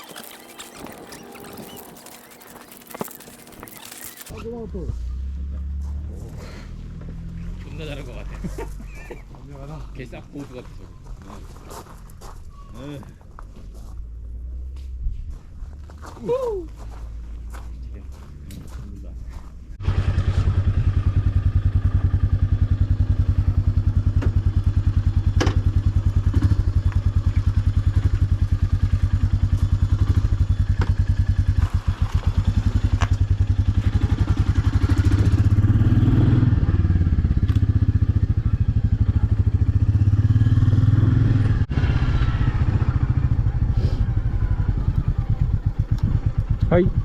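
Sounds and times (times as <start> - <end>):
motorcycle engine idling: 19.8 - 35.8, 36.5 - 47.0.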